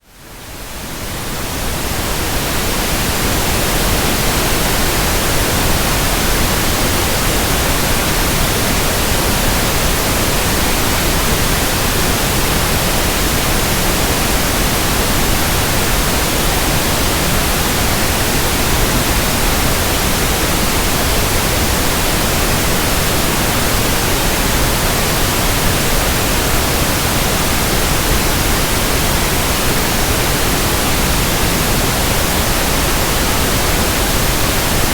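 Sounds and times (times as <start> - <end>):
pink noise hiss: 0.1 - 34.9.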